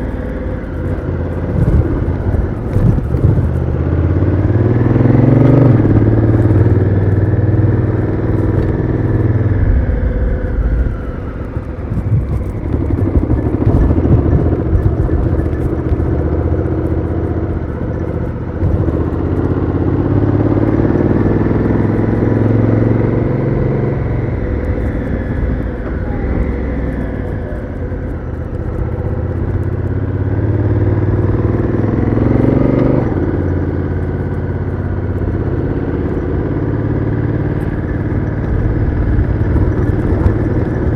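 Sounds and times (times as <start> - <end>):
motorcycle engine accelerating: 0.0 - 40.9
wind rumble on microphone: 0.0 - 40.9.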